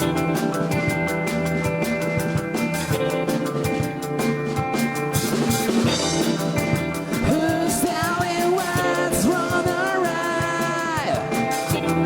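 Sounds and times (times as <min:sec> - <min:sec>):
live rock band playing: 0:00.0 - 0:12.0
person singing: 0:07.1 - 0:12.0.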